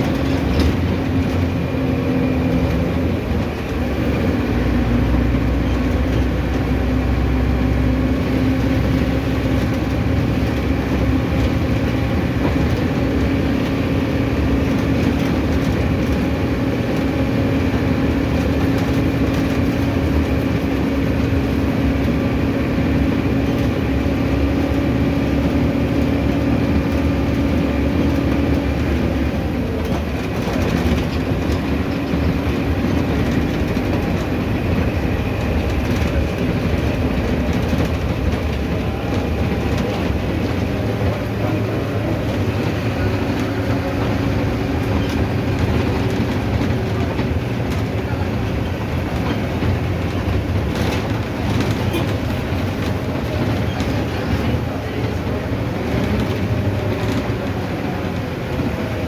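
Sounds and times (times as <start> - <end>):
bus diesel engine droning: 0.0 - 59.0
bodywork rattling and clattering: 8.1 - 59.0.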